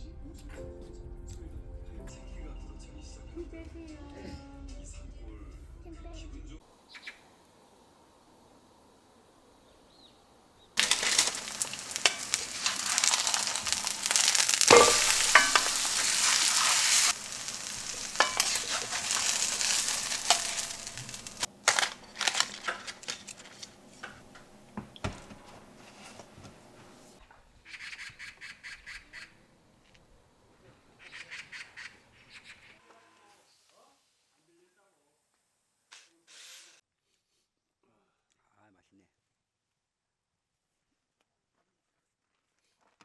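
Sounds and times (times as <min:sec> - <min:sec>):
utensils clicking while stirring: 0:10.8 - 0:27.1
food sizzling in a hot pan: 0:10.8 - 0:27.2.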